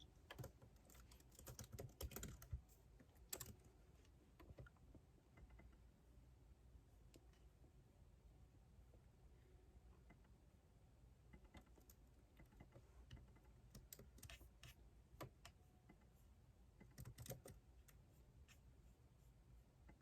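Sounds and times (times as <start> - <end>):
typing on computer keyboard: 0.2 - 3.7, 11.3 - 15.6, 16.8 - 18.0.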